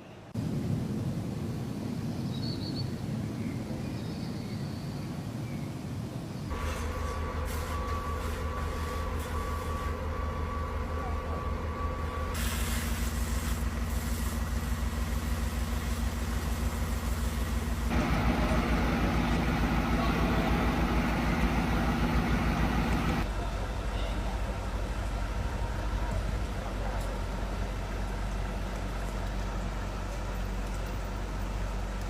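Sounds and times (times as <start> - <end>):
low pulsing mechanical rumble: 6.5 - 32.0.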